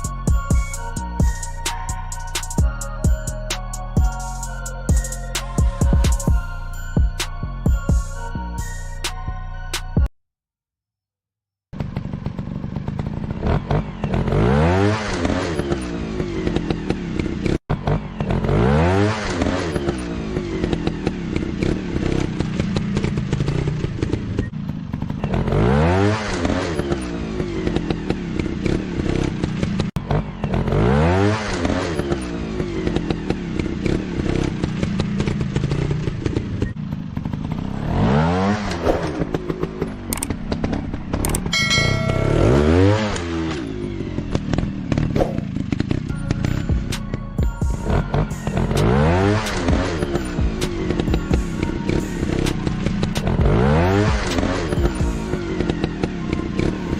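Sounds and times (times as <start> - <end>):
motorcycle engine revving: 11.7 - 56.9.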